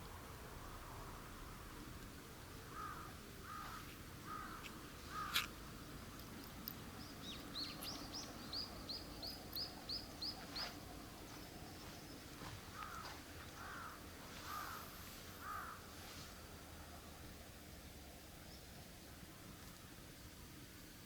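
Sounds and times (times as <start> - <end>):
bird harsh calls: 2.7 - 5.5, 12.8 - 15.8.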